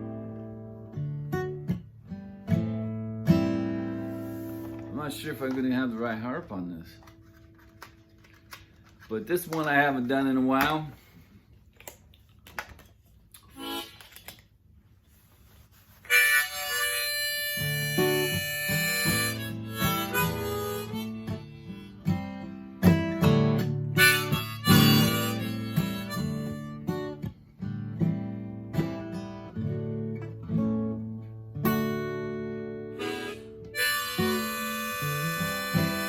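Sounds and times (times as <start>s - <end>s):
strummed acoustic guitar chords: 0.0s - 6.6s, 16.4s - 36.0s
harmonica playing: 13.5s - 14.3s, 16.0s - 27.2s, 32.8s - 36.0s.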